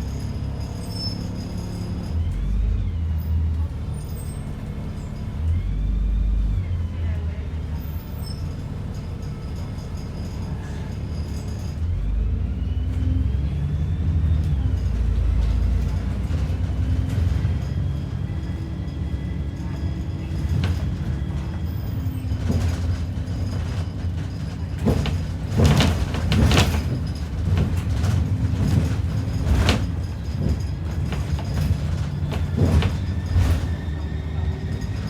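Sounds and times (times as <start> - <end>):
bus engine and road rumble: 0.0 - 35.0
bodywork knocks and rattles: 19.9 - 33.9.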